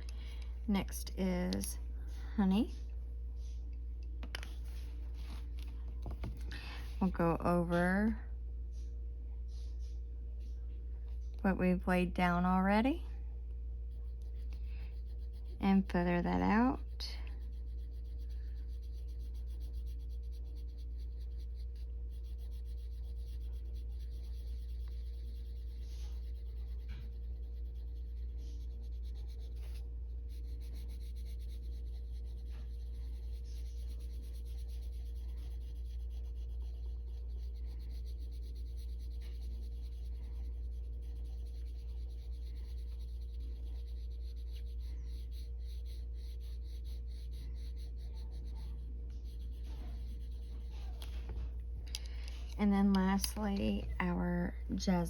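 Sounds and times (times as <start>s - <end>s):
steady low hum: 0.0s - 55.0s
pencil scratching on paper: 13.9s - 55.0s.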